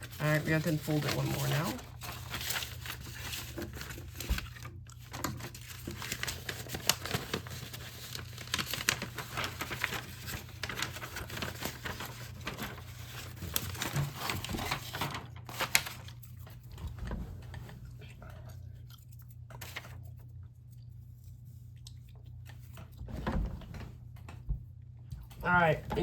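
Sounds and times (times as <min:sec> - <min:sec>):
plastic crinkling and crackling: 0:00.0 - 0:17.0.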